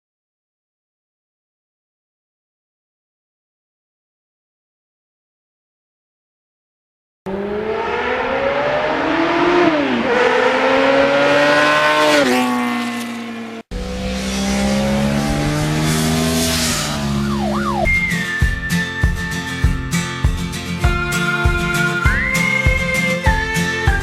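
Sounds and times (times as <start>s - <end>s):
motorcycle engine accelerating: 7.3s - 18.3s
steady high tone: 13.7s - 20.0s.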